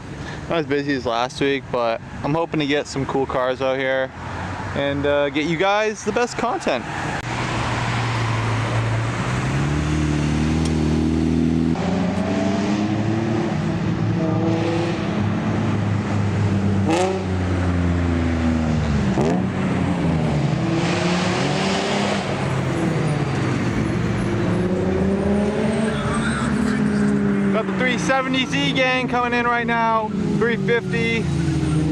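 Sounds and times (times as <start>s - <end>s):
car engines revving: 0.0s - 31.9s.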